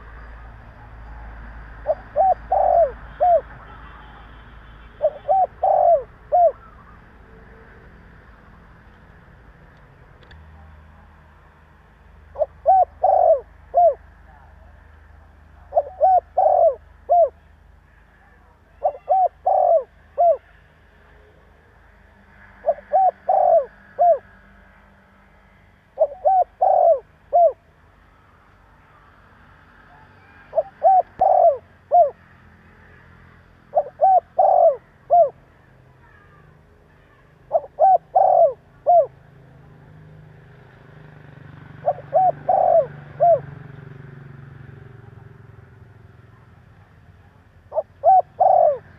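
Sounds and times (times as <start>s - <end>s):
dove cooing: 0.0s - 4.0s, 4.9s - 7.2s, 12.3s - 14.5s, 15.6s - 17.5s, 18.7s - 20.6s, 22.6s - 24.3s, 26.0s - 27.6s, 29.9s - 32.3s, 33.7s - 35.4s, 36.1s - 39.2s, 41.8s - 43.6s, 47.6s - 48.9s.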